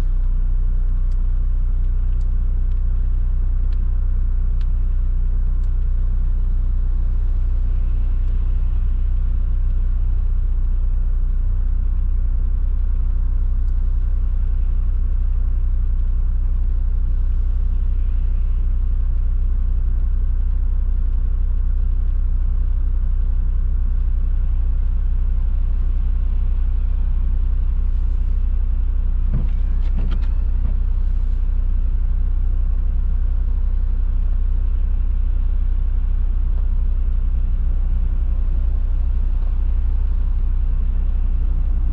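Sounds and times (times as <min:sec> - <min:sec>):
car driving on wet road: 0:29.1 - 0:31.5.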